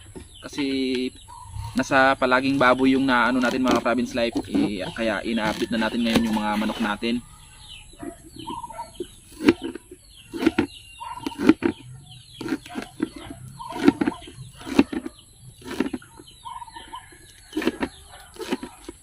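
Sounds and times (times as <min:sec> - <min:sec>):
chickens clucking: 0:00.0 - 0:19.0
blade chopping on wooden surface: 0:09.3 - 0:11.8, 0:12.4 - 0:16.0, 0:17.5 - 0:19.0.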